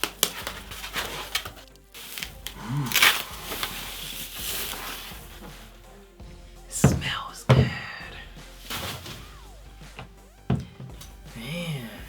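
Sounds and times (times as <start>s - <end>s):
plastic wrap crinkling: 0.0s - 5.7s
cardboard rustling: 0.0s - 5.8s, 8.6s - 11.5s.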